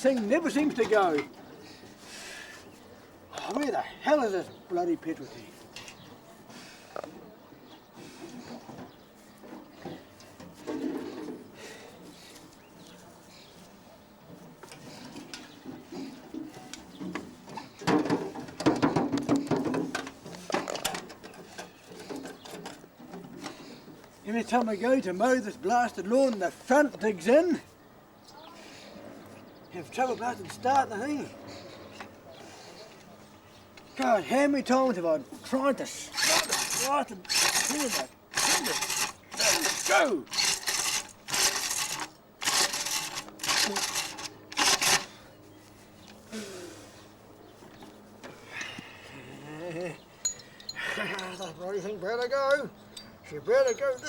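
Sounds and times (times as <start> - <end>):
lawn mower mechanical clicking: 36.1 - 45.2.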